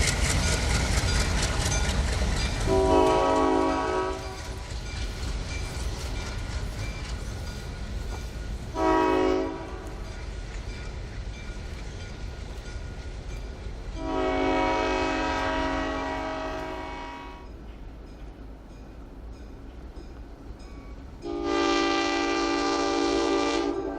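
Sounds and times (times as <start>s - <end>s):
diesel locomotive engine rumbling: 0.0s - 23.9s
locomotive air horn blasts: 2.7s - 4.5s, 8.7s - 10.0s, 14.0s - 17.4s, 21.2s - 23.9s.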